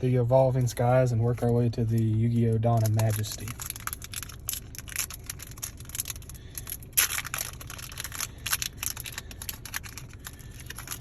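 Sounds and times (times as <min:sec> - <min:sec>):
foil wrapper crinkling: 0:02.6 - 0:11.0.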